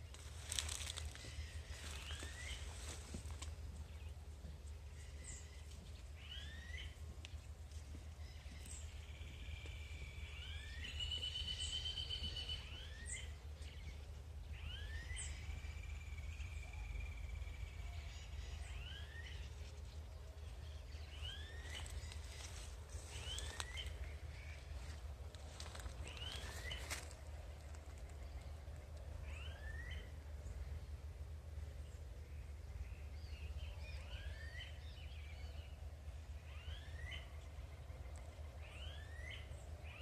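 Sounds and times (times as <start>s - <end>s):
birds calling: 0.0s - 30.9s
steady low rumble: 0.0s - 40.0s.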